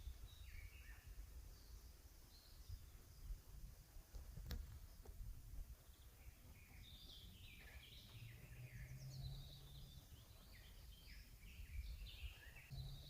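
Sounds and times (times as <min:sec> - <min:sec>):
songbirds chirping: 0:00.0 - 0:13.0
low rumble: 0:11.5 - 0:13.0.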